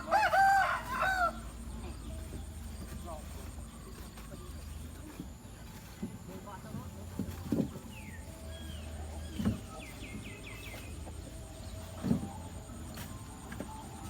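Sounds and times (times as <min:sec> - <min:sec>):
bird chirping: 0:07.9 - 0:12.5.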